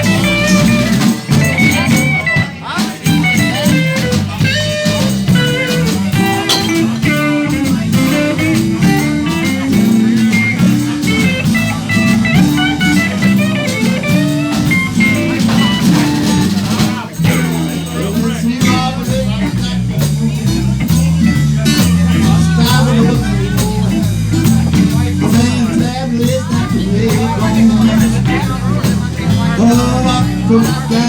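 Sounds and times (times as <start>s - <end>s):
lead guitar soloing: 0.0s - 16.6s
live blues band playing: 0.0s - 31.0s.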